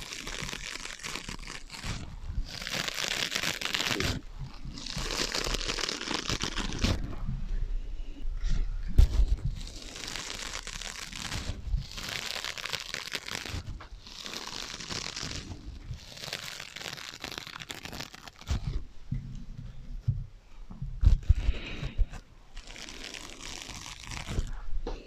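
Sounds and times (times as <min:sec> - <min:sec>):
scratching on sponges: 0:00.0 - 0:07.4, 0:08.5 - 0:18.9.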